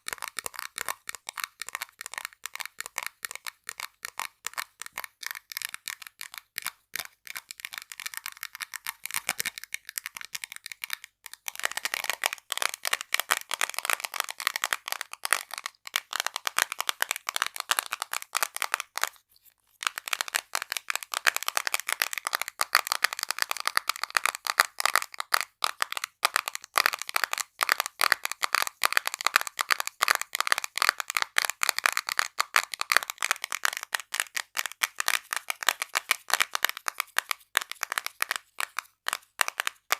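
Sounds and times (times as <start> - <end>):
quick tapping on small objects: 19.8 - 39.9.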